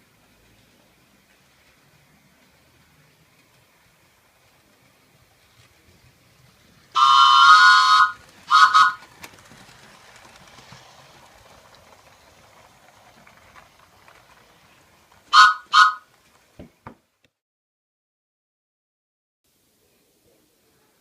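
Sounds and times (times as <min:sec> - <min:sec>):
train whistle blasts: 0:07.0 - 0:09.0, 0:15.3 - 0:16.0.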